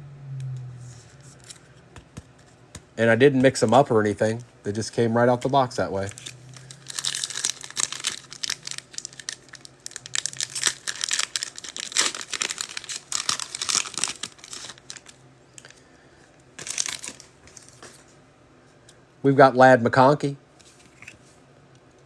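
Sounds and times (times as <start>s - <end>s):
foil wrapper crinkling and tearing: 5.3s - 15.7s, 16.6s - 17.3s.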